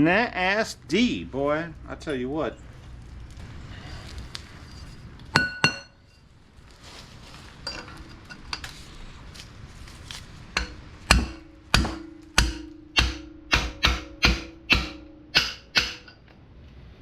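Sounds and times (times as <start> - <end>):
hammer striking metal: 10.6 - 16.2.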